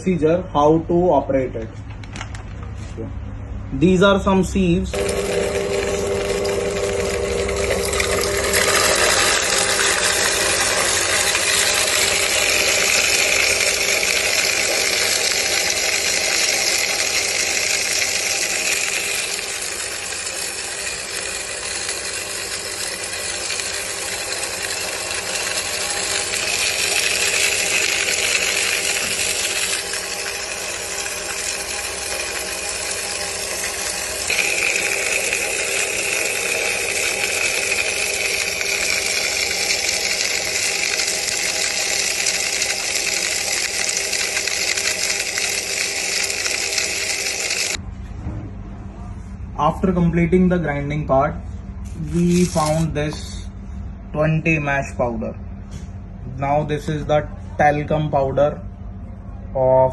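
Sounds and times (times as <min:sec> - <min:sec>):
motor hum: 0:01.6 - 0:59.9
cutting mill grinding: 0:04.9 - 0:47.8, 0:51.8 - 0:53.6.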